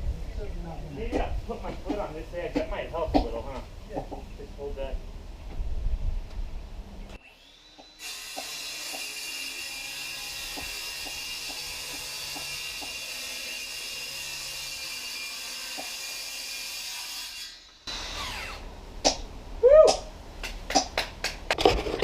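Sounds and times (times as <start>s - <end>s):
circular saw cutting wood: 7.2s - 18.7s.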